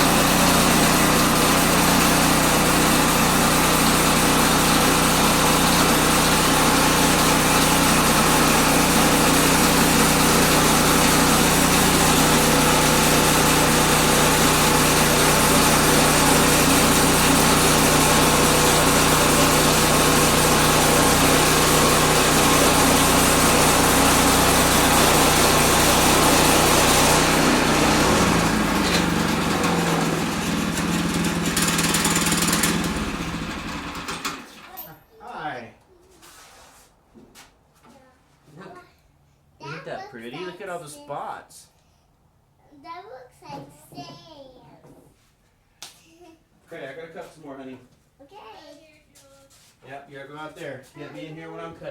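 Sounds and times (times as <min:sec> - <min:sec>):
bandsaw sawmill cutting log: 0:00.0 - 0:34.9
small gas engine running: 0:00.0 - 0:35.0.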